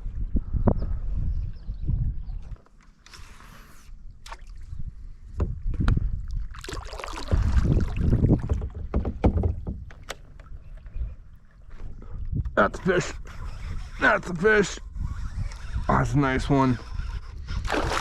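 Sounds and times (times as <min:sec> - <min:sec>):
knocks and clicks on kayak: 0:07.2 - 0:10.9.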